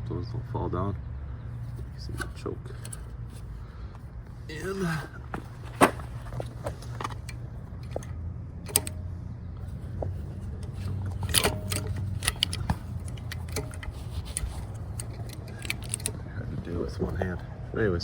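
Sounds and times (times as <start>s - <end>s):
low steady hum: 0.0s - 18.0s
small metal parts clinking: 1.6s - 3.5s, 5.5s - 16.2s.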